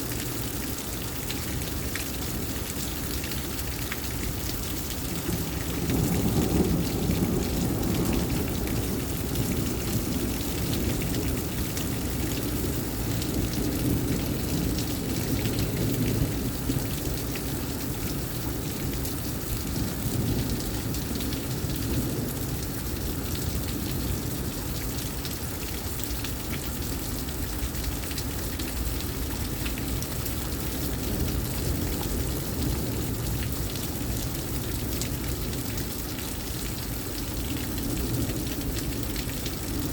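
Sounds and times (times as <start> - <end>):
heavy rain pouring: 0.0 - 39.9
low rumble of thunder: 4.2 - 26.0, 27.4 - 36.0, 36.6 - 39.9.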